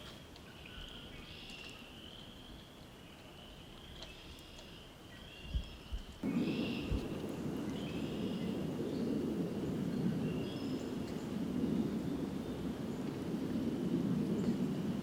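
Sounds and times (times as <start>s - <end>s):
low thumps: 6.2s - 12.0s
rushing noise: 6.2s - 15.0s.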